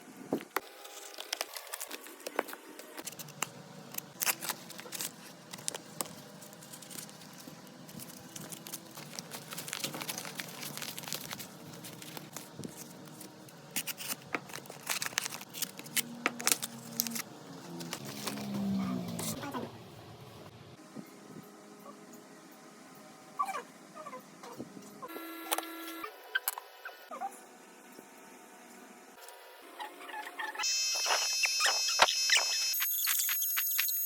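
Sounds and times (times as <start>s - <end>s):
crackling and scraping glass: 0.8s - 18.6s.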